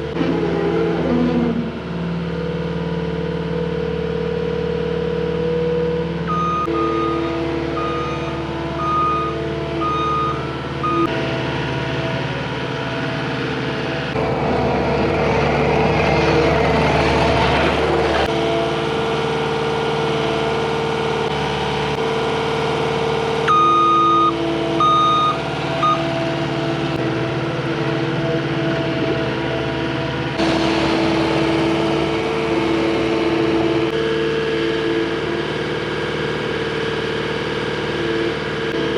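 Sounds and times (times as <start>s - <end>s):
diesel engine running: 0.0s - 38.9s
backup alarm beeping: 6.3s - 11.1s, 23.5s - 26.1s.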